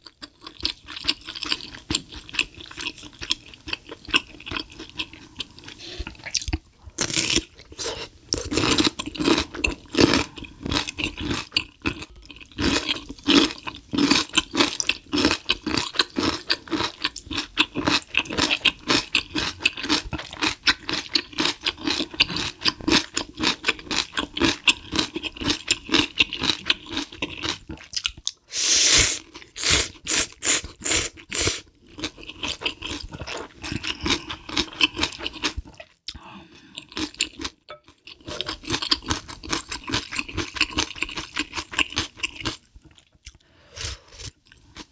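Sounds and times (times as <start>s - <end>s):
chewing and wet mouth smacks: 26.7s - 28.4s, 38.2s - 43.4s.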